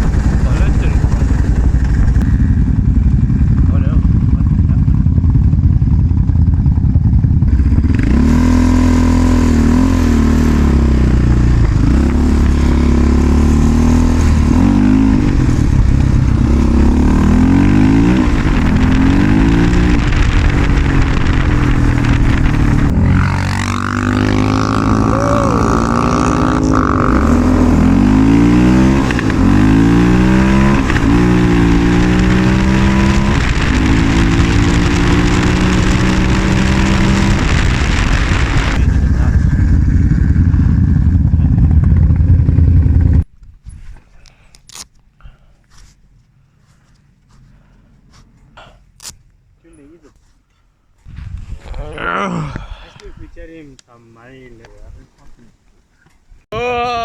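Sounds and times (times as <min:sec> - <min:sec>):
quad bike engine revving: 0:00.0 - 0:43.2.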